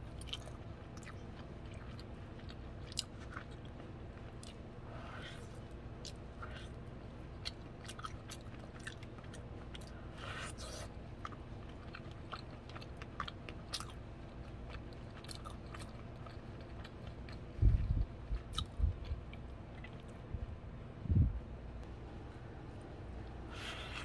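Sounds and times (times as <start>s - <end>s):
person chewing corn: 0.0s - 20.2s, 23.5s - 24.0s
dull low thumps: 17.5s - 19.2s.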